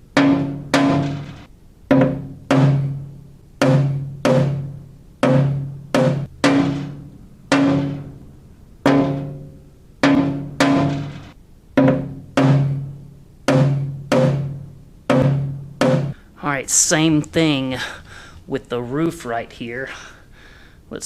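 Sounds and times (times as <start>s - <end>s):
hammer tapping metal panel: 0.1s - 8.2s, 8.8s - 16.2s.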